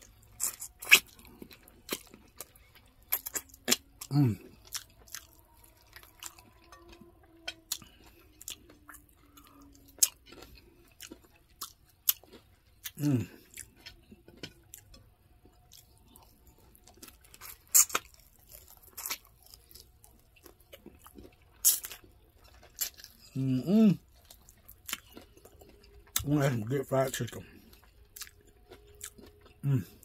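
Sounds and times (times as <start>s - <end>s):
chewing crispy fried chicken: 0.0s - 30.0s.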